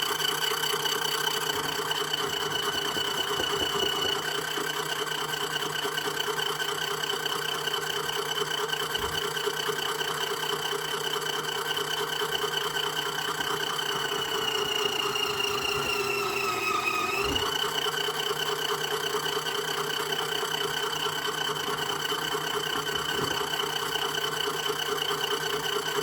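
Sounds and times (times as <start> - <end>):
washing machine spinning: 0.0 - 26.0.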